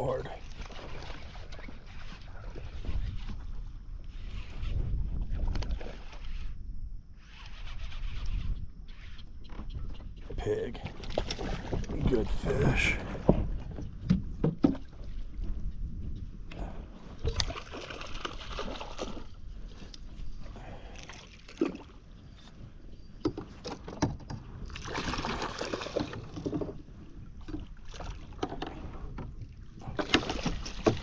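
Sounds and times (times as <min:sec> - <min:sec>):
water splashing and sloshing: 0:00.0 - 0:06.6, 0:10.4 - 0:31.0.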